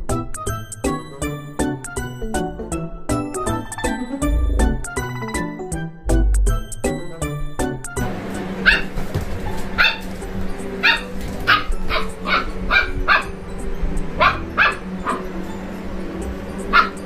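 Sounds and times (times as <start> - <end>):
background music: 0.0 - 17.0
puppy barking high-pitched: 8.6 - 9.0, 9.7 - 10.1, 10.8 - 13.4, 14.2 - 15.4, 16.7 - 17.0.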